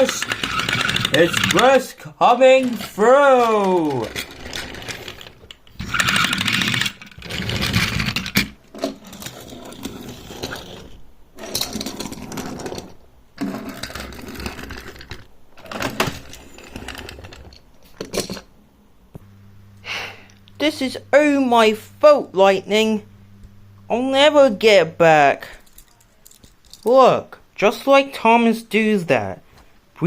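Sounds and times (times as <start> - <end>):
toy train motor whirring: 0.0 - 17.5
toy track clicks and clatter: 0.0 - 18.4.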